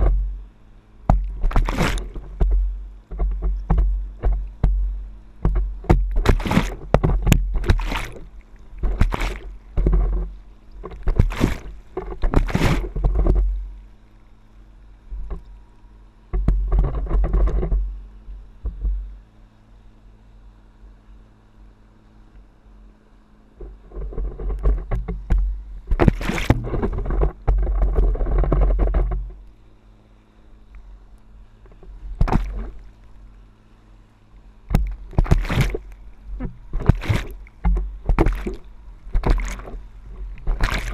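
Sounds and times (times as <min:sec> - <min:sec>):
wind rumble on microphone: 0:00.0 - 0:13.9, 0:16.3 - 0:19.2, 0:23.6 - 0:29.5, 0:31.6 - 0:33.2, 0:34.6 - 0:40.9
faint low drone: 0:00.0 - 0:40.9
water rushing and splashing: 0:01.0 - 0:14.2, 0:25.0 - 0:28.6, 0:31.8 - 0:33.4, 0:34.6 - 0:40.9.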